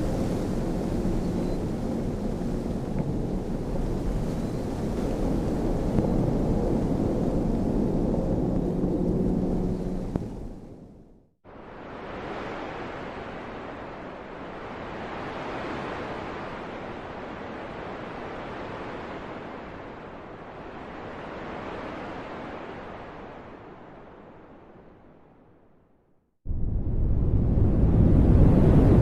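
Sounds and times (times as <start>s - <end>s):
wind blowing in gusts: 0.0s - 25.6s, 26.5s - 29.0s.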